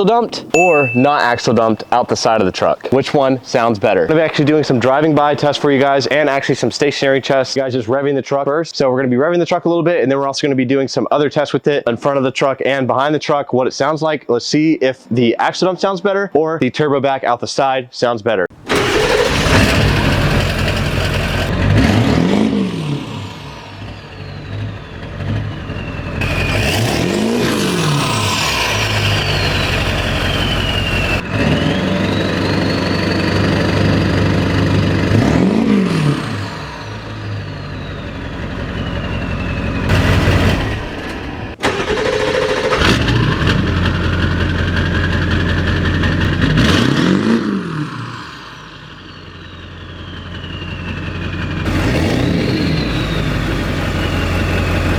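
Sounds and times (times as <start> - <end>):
diesel engine idling and revving: 0.8 - 7.5, 18.5 - 54.9
turbo whistle: 23.7 - 34.0, 36.6 - 41.1, 48.8 - 54.9.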